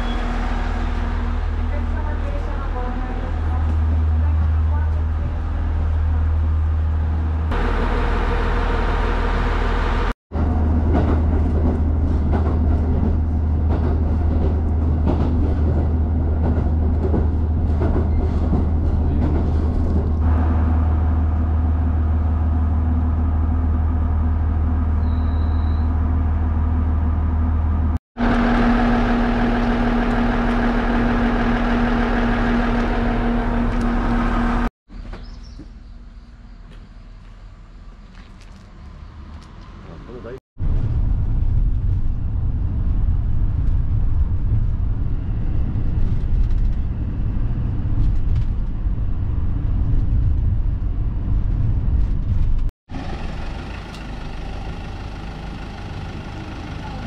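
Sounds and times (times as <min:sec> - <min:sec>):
rattling rail noise: 0:00.0 - 0:26.9, 0:40.7 - 0:57.0
diesel railcar engine drone: 0:00.0 - 0:34.7, 0:35.9 - 0:57.0.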